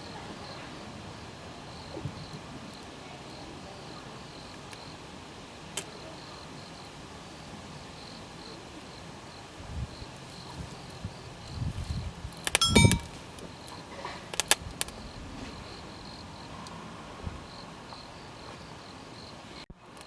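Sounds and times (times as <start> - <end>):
sharp click: 12.5 - 13.1.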